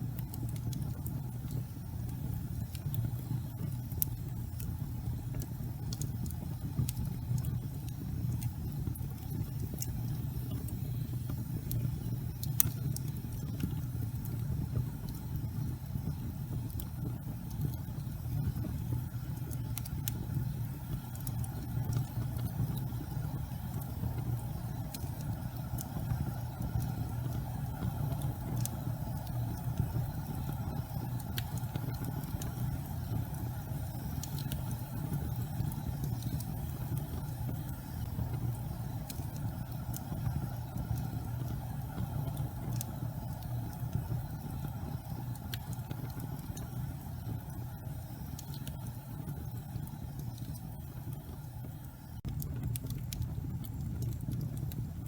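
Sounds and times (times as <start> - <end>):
faint fire crackles: 0.0 - 55.0
gas fire flames rumbling: 0.0 - 55.0.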